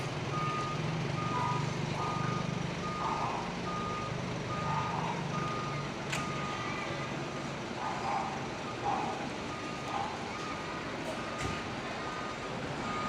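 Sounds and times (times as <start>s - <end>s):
engine running hum: 0.0s - 13.0s.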